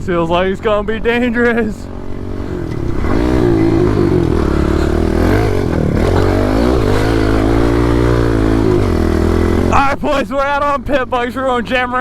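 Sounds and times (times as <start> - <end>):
low engine hum: 0.6 - 10.0
motorbike engine revving: 1.8 - 10.0.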